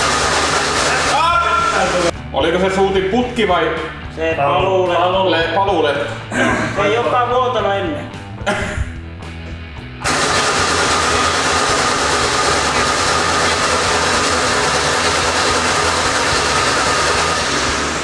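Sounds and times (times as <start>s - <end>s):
car engine droning: 10.1s - 18.0s.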